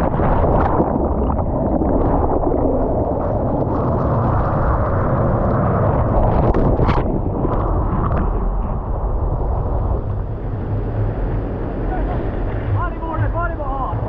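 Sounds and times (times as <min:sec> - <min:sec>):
water splash: 0:00.0 - 0:10.1
ocean surf churning: 0:00.0 - 0:14.0
wind buffeting microphone: 0:00.0 - 0:14.0.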